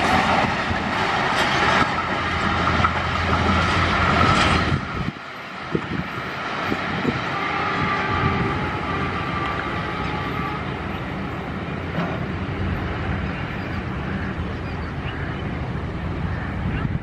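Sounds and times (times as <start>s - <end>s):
train coaches rattling over rails: 0.0s - 17.0s
wheel squeal on rail: 6.7s - 11.4s.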